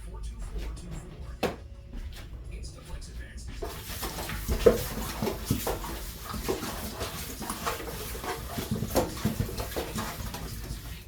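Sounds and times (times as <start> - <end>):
wet squishing of raw chicken: 3.7 - 11.0.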